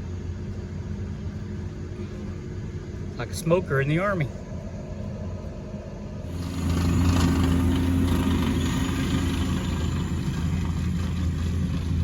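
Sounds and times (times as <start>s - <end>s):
road and wind noise: 0.0s - 12.0s
vehicle engine humming: 0.0s - 12.0s.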